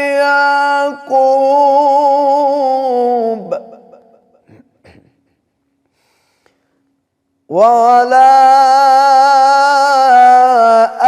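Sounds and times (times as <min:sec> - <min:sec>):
man chanting melodically: 0:00.0 - 0:05.1, 0:07.5 - 0:11.0.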